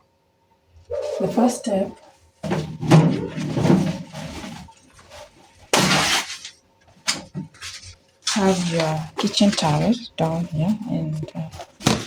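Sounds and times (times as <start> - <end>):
paper towel handling: 2.4 - 12.0
paper towel ripping: 3.3 - 12.0.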